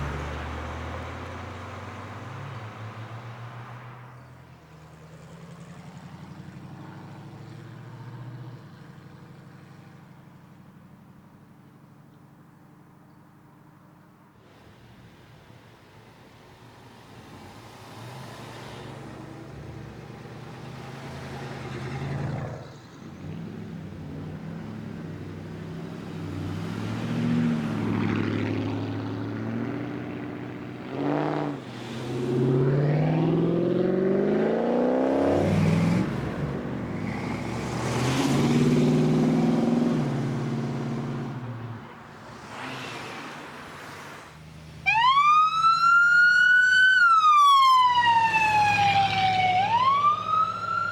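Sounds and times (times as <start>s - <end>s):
cars accelerating with loud exhausts: 17.0s - 50.9s.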